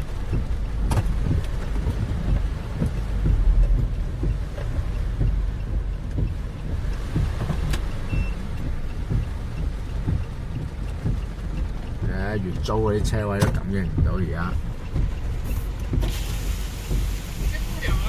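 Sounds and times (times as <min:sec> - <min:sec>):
heavy rain rumble inside car: 0:00.0 - 0:18.0
sharp taps: 0:00.1 - 0:16.2
short faint beep: 0:08.1 - 0:08.4.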